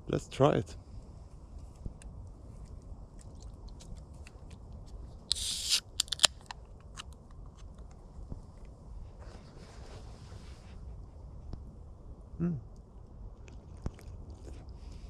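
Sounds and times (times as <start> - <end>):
beer can hiss: 5.3 - 6.0.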